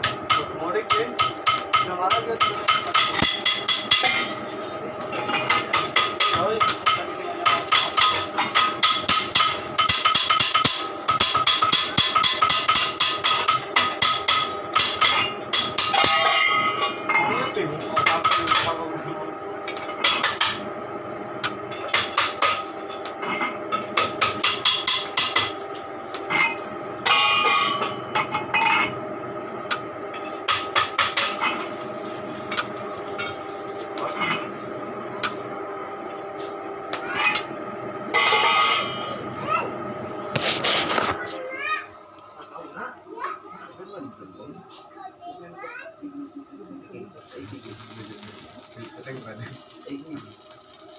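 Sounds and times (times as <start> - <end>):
hammer striking metal: 0.0 - 4.4, 5.2 - 18.8, 21.4 - 25.6, 26.2 - 28.9, 36.9 - 39.2
metallic ringing: 5.1 - 18.8, 26.3 - 29.0, 37.1 - 39.2.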